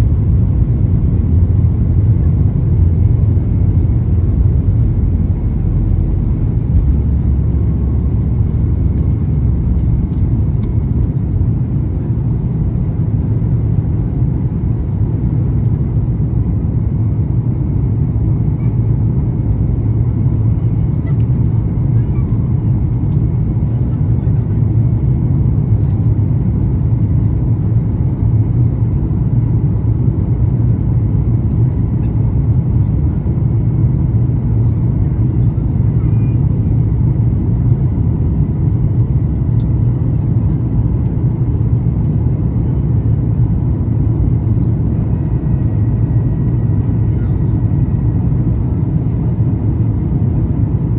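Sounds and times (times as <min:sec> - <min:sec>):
jet engines deep rumble: 0:00.0 - 0:50.9.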